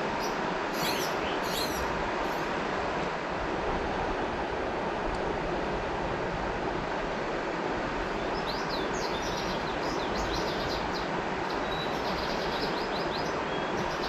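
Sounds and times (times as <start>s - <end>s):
river water rushing: 0.0s - 14.0s
small birds chirping: 0.2s - 2.4s, 8.3s - 14.0s.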